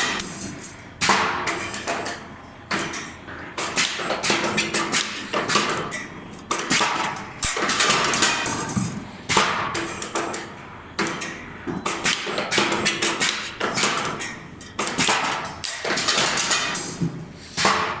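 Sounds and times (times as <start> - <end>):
wire bending machine clacking: 11.9 - 17.9.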